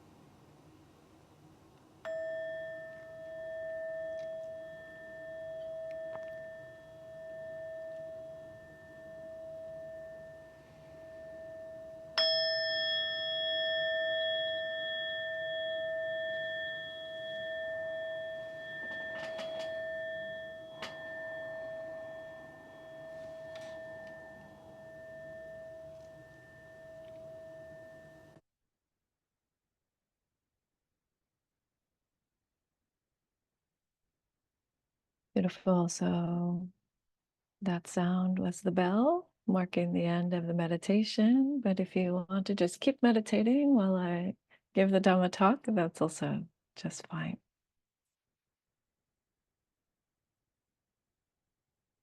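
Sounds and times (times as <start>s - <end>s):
meditation bell ringing: 2.0s - 28.4s.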